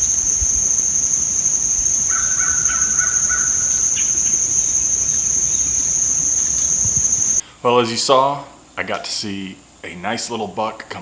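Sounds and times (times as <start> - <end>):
distant crow cawing: 0.0 - 7.4.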